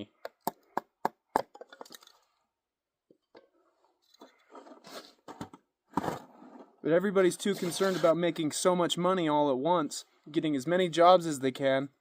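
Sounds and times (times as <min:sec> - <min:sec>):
rustling and handling noise: 0:03.1 - 0:08.5.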